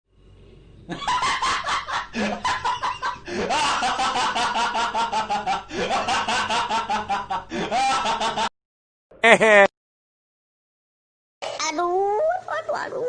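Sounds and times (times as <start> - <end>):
voice snickering: 9.2 - 9.7.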